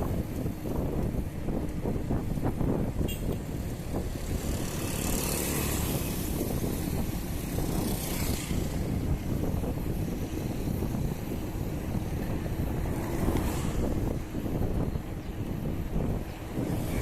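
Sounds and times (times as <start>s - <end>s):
wind buffeting microphone: 0.0s - 17.0s
vehicle passing: 3.6s - 14.9s.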